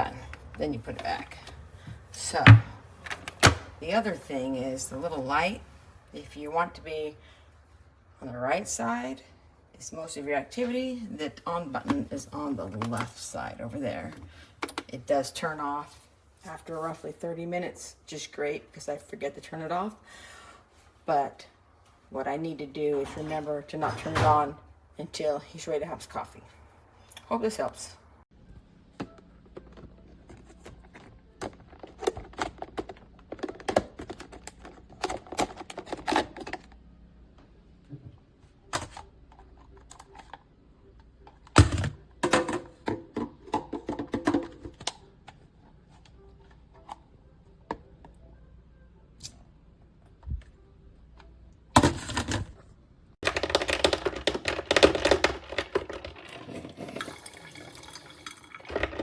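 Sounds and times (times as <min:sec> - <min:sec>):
objects clicking and clattering: 0:29.0 - 0:36.8, 0:53.2 - 0:57.2, 0:58.6 - 0:59.0.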